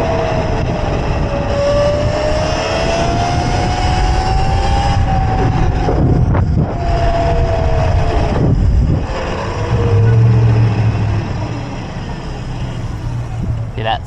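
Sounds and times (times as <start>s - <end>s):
wind rushing over microphone: 0.0s - 13.8s
road rumble: 0.0s - 14.0s
thin whine sliding down in pitch: 4.4s - 13.0s
low hum: 5.2s - 13.6s.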